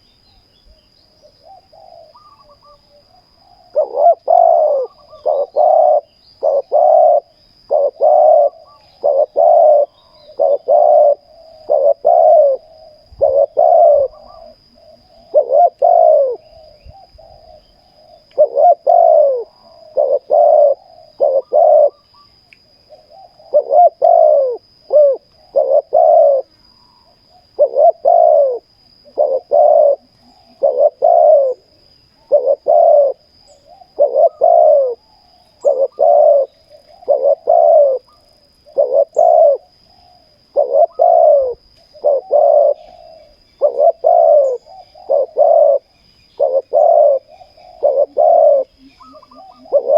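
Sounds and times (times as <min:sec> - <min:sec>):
doves cooing: 0:01.1 - 0:49.9.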